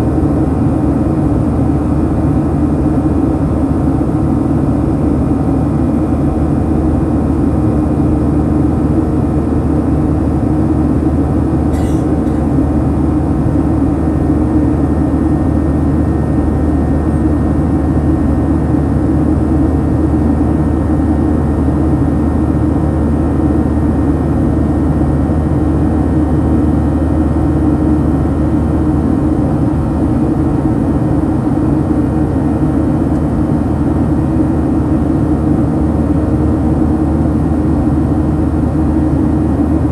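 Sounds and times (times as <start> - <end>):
airplane cabin engine drone: 11.7 - 13.6.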